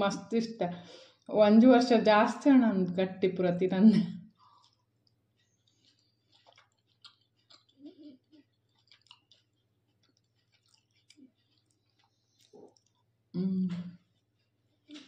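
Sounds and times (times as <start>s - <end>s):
chewing mouth clicks: 4.3s - 13.1s.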